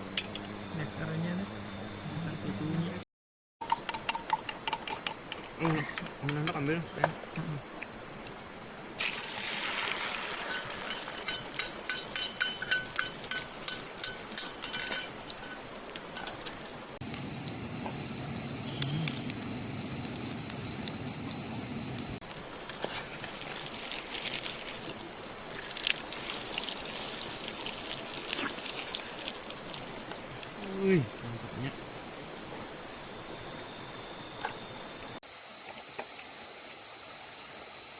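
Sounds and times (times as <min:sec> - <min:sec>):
insects droning: 0:00.0 - 0:03.0, 0:03.6 - 0:37.9.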